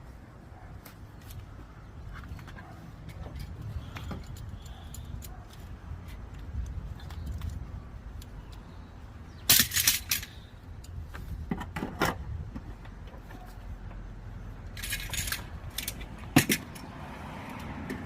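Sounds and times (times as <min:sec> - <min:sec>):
metal parts and tools clinking: 0:02.1 - 0:08.8, 0:09.4 - 0:11.0, 0:14.6 - 0:17.7.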